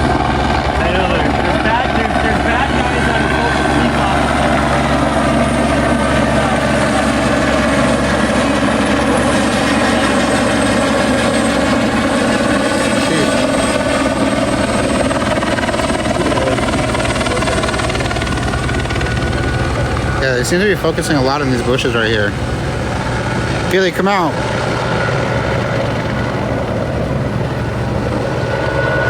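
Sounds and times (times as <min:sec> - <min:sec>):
helicopter hovering: 0:00.0 - 0:29.0.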